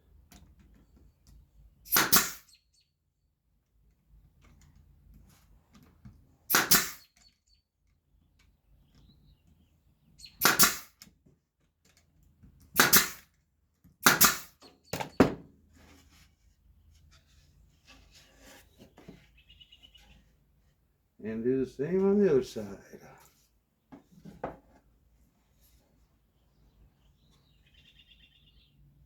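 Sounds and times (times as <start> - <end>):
brad nailer popping: 1.9 - 2.5, 6.5 - 7.3, 10.3 - 11.1, 12.6 - 15.4.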